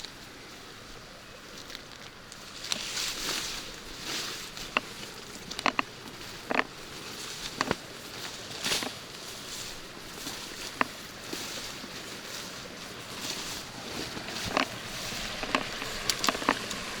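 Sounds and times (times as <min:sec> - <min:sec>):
rain falling: 0:12.8 - 0:17.0
sharp taps of raindrops: 0:14.1 - 0:17.0.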